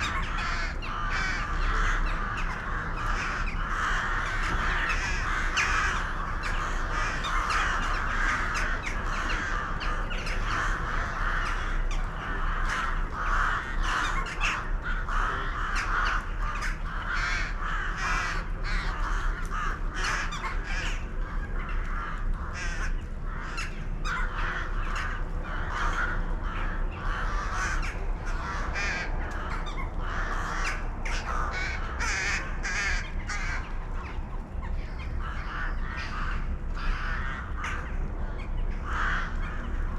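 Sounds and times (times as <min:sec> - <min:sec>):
flock of birds calling: 0:00.0 - 0:39.9.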